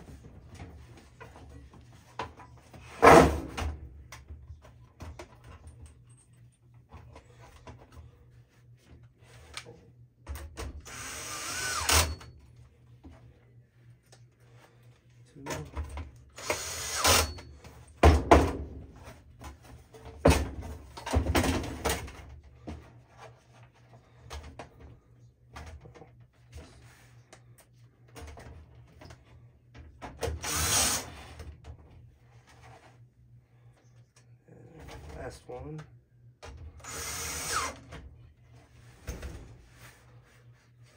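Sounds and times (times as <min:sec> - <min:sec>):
power drill running in bursts: 0:10.8 - 0:12.3, 0:16.4 - 0:17.4, 0:30.4 - 0:31.2, 0:36.8 - 0:37.8.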